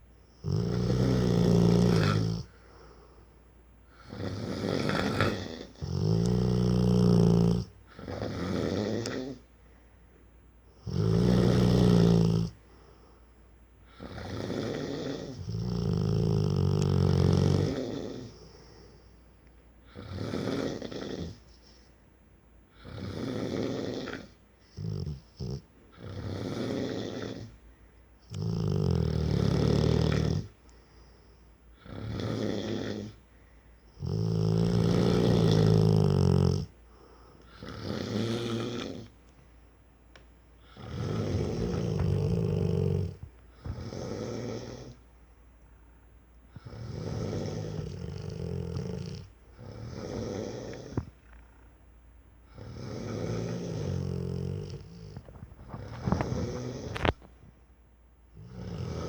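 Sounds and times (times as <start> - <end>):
dog snoring: 0.3 - 2.7, 3.9 - 9.5, 10.7 - 12.6, 13.8 - 19.1, 19.8 - 21.9, 22.7 - 27.6, 28.2 - 30.6, 31.7 - 33.2, 33.9 - 39.2, 40.6 - 45.0, 46.5 - 51.6, 52.5 - 57.3, 58.3 - 59.0.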